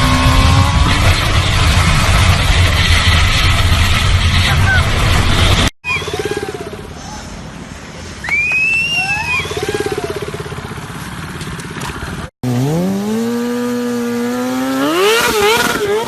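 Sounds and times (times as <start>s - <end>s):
motorcycle engine buzzing: 0.0s - 4.1s, 9.5s - 16.0s
motorcycle engine revving: 0.0s - 6.8s, 9.5s - 16.0s.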